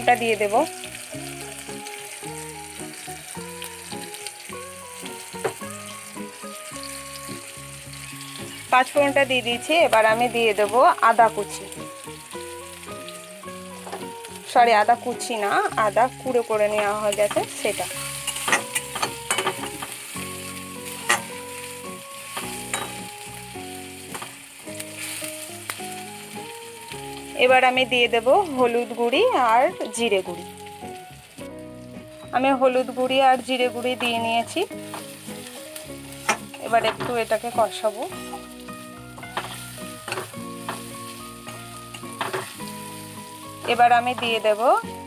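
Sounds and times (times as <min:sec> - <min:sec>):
slow music with held notes: 0:00.0 - 0:45.0
vegetables sizzling in oil: 0:00.0 - 0:45.0
spatula stirring in pan: 0:16.8 - 0:22.8.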